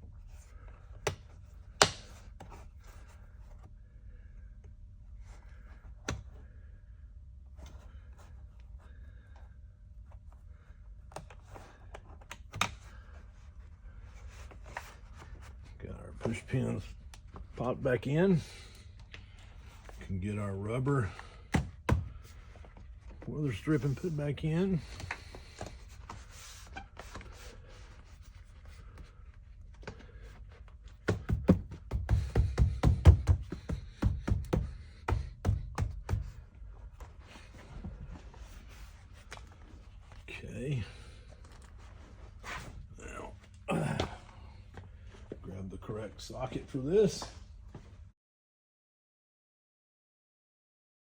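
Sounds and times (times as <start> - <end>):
dull thumps: 21.2 - 23.3, 30.9 - 38.2.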